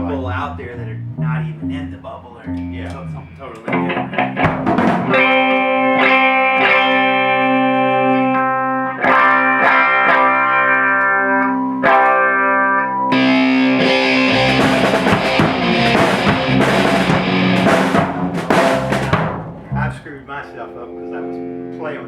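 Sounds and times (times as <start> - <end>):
low thumps: 0.0 - 5.4, 13.2 - 20.2
distorted guitar playing: 0.0 - 22.0
electric guitar chords: 0.0 - 22.0.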